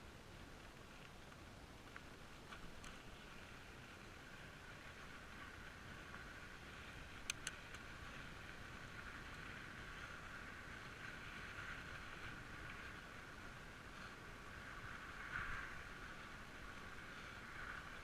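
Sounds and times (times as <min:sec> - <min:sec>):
bicycle rolling noise: 0:00.0 - 0:18.0
sharp clicks: 0:07.2 - 0:07.8.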